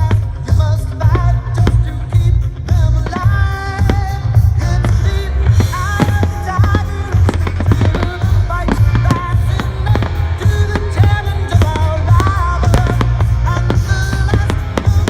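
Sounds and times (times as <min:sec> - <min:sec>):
fireworks banging and crackling: 0:00.0 - 0:15.0
loud music with heavy bass: 0:00.0 - 0:15.0
person singing: 0:00.0 - 0:15.0.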